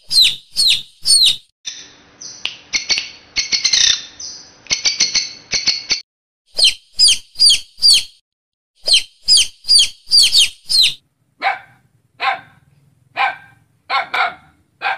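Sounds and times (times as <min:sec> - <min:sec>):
bird chirping: 0:00.0 - 0:06.0, 0:06.6 - 0:08.2, 0:08.8 - 0:12.6
dog barking: 0:11.4 - 0:14.9.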